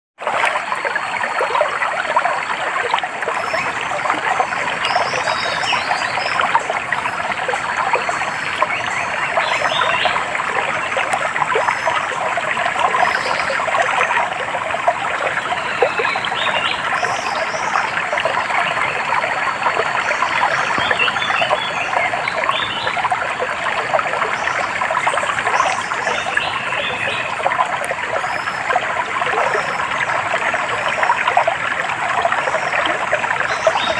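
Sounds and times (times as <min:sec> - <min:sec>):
stream babbling over stones: 0:00.2 - 0:33.9.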